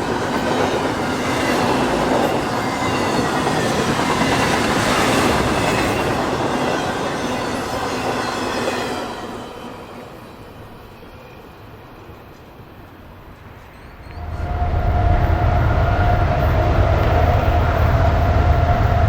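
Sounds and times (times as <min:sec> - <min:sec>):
train wheels rumbling on rail: 0:00.0 - 0:19.0
faint high wheel squeal: 0:13.4 - 0:19.0.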